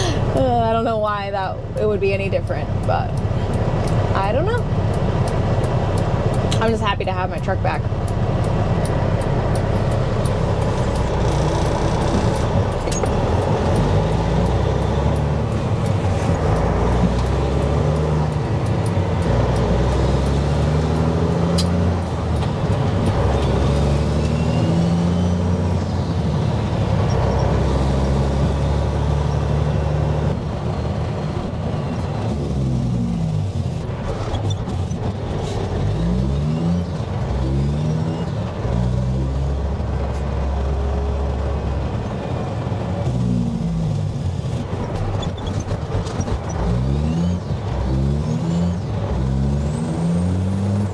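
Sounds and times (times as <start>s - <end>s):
diesel truck engine shifting gears: 0.0s - 50.9s
road rumble: 0.0s - 50.9s.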